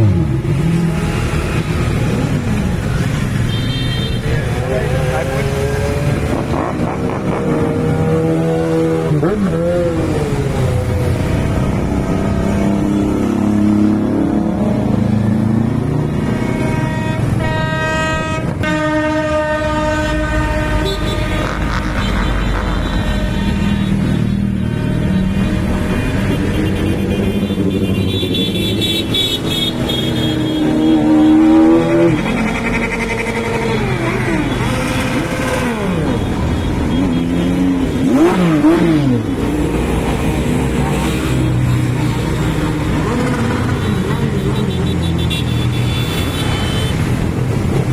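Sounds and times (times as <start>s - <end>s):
motorcycle engines revving: 0.0s - 47.9s
loud horn blast: 15.5s - 39.6s, 40.9s - 47.5s.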